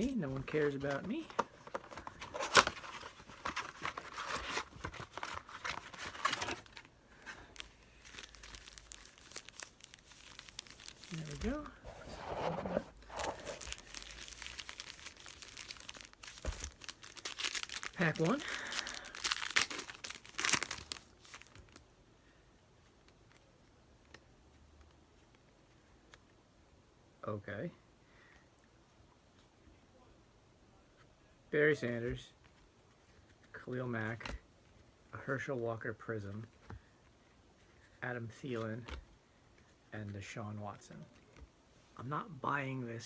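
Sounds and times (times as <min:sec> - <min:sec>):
foil packaging crinkling: 0:00.0 - 0:11.8, 0:13.0 - 0:21.9.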